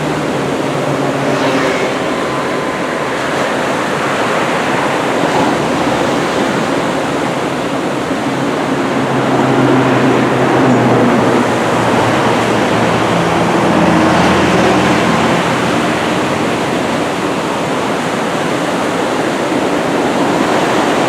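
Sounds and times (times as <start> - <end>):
ocean surf breaking: 0.0 - 21.0
low hum: 0.7 - 7.5.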